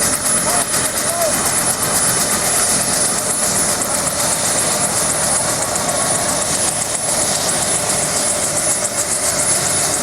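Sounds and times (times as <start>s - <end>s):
helicopter rotor roar: 0.0s - 10.0s.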